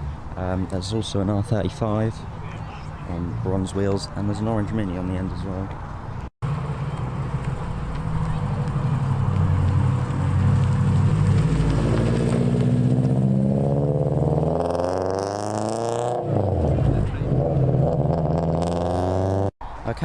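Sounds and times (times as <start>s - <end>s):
car engine revving: 6.4s - 19.5s.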